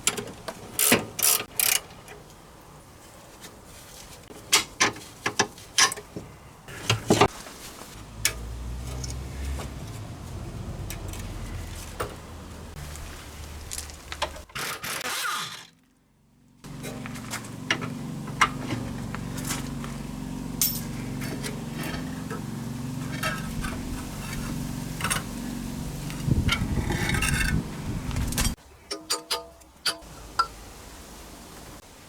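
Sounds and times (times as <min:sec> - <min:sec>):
hand tools clinking on steel: 0:20.6 - 0:25.3, 0:28.4 - 0:30.6.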